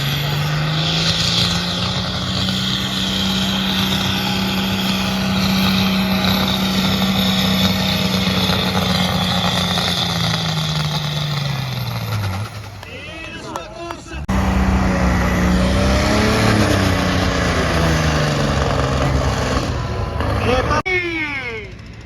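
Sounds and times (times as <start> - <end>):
tractor engine at high revs: 0.0 - 20.9.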